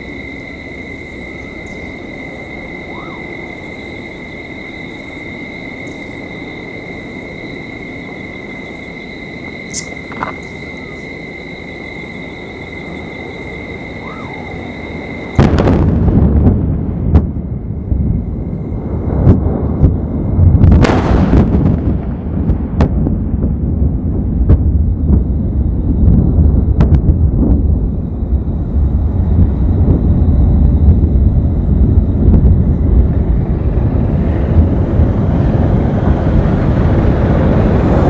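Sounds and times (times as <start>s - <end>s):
high even whine: 0.0s - 20.8s
heavy rumble: 0.0s - 38.0s
loud explosion blast: 15.1s - 38.0s
sharp crack: 20.7s - 23.0s.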